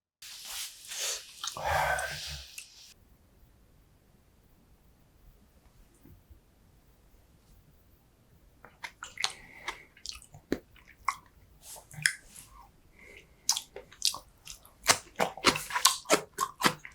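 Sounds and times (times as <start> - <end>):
chewing with wet mouth clicks: 8.7 - 12.3, 13.4 - 16.9.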